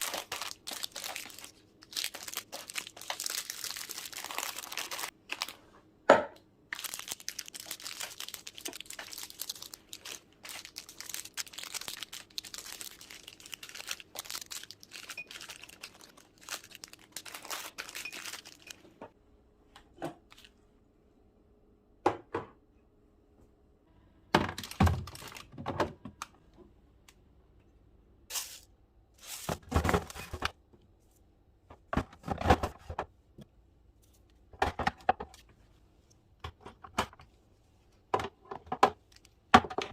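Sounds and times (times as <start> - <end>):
plastic packaging crinkling: 0.0 - 5.6, 6.7 - 18.9, 24.6 - 25.6
items knocking and clattering: 29.5 - 30.5, 31.7 - 33.1, 34.5 - 35.4, 38.1 - 39.9.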